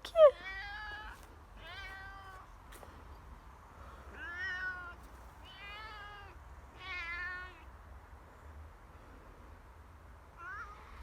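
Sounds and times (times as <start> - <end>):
cat meowing: 4.2 - 7.6.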